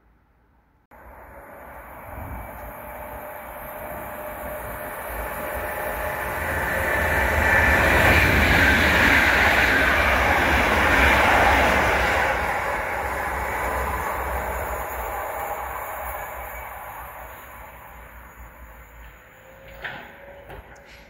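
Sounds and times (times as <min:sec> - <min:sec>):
train passing rumble: 0:00.9 - 0:21.0.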